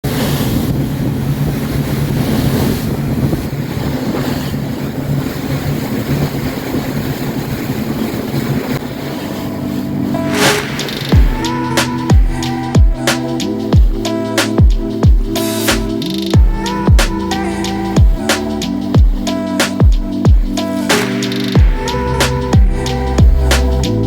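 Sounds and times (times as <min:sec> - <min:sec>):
water rushing along hull: 0:00.0 - 0:24.0
wind on microphone: 0:00.0 - 0:24.0
ferry engines humming: 0:04.8 - 0:24.0.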